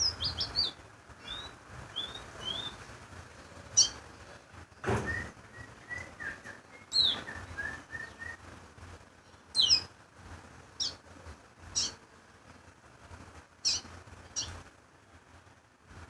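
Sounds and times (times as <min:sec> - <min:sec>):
songbird calling: 0:00.0 - 0:02.9, 0:03.8 - 0:04.0, 0:05.0 - 0:08.4, 0:09.6 - 0:09.9, 0:10.8 - 0:11.0, 0:11.7 - 0:12.0, 0:13.6 - 0:14.6
thump: 0:04.8 - 0:05.3.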